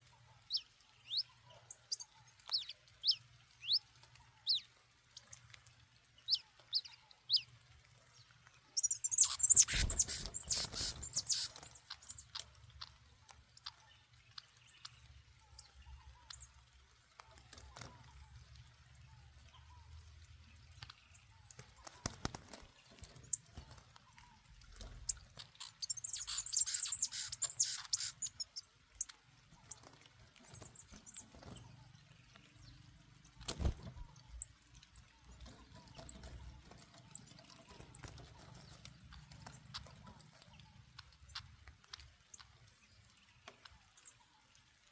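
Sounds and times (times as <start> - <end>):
small bird chirping: 0.0 - 5.5, 6.2 - 7.5, 8.1 - 44.4
high rustling or fluttering: 8.8 - 12.3.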